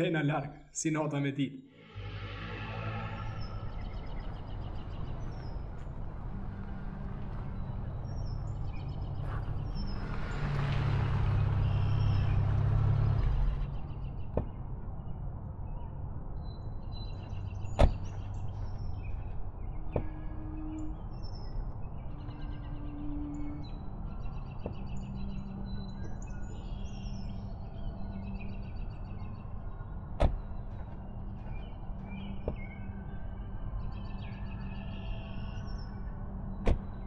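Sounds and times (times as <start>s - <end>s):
birds chirping: 2.2s - 37.0s
car engine running: 4.5s - 14.6s.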